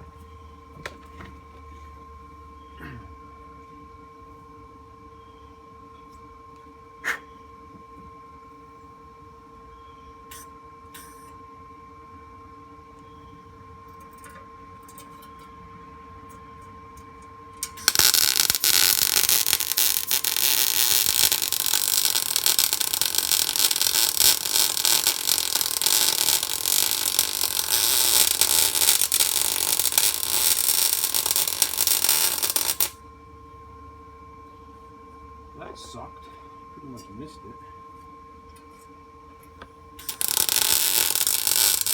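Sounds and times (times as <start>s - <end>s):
steady two-tone hum: 0.0s - 41.9s
welder arc crackling: 17.6s - 33.0s, 40.0s - 41.9s.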